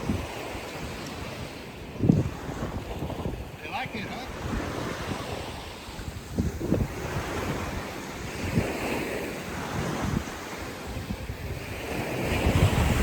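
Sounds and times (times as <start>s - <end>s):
sea waves: 0.0s - 13.0s
wind buffeting microphone: 0.0s - 13.0s.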